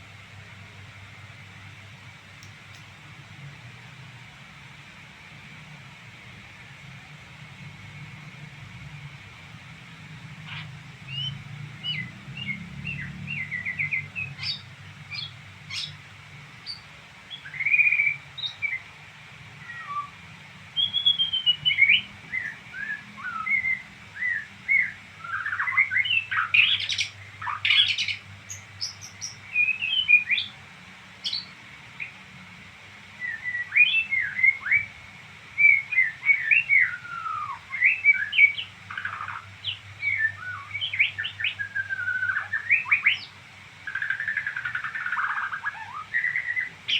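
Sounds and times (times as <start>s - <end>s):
songbird twittering: 10.5s - 16.0s, 16.6s - 18.9s, 20.8s - 30.6s, 31.2s - 32.2s, 33.2s - 35.0s, 35.6s - 46.9s.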